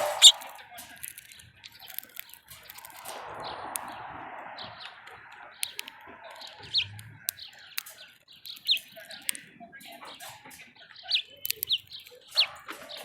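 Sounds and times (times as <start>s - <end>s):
sharp clicks and taps: 0.0s - 3.9s, 5.6s - 10.5s, 11.1s - 12.8s
small birds chirping: 0.0s - 13.0s
soft rushing noise: 2.7s - 7.3s.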